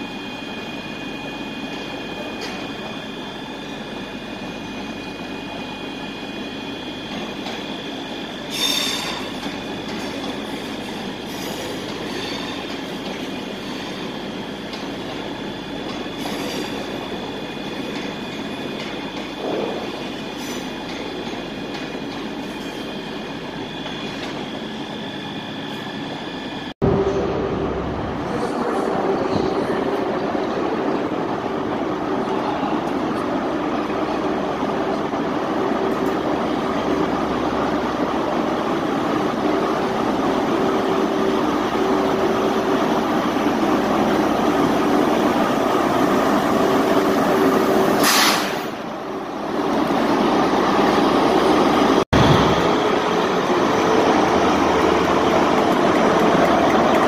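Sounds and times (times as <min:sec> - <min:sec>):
train rumble: 0:26.8 - 0:57.0.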